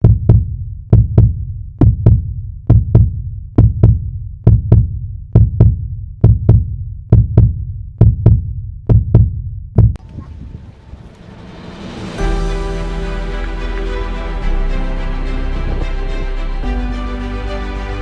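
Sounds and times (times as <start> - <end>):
heartbeat double thump: 0.0 - 10.7.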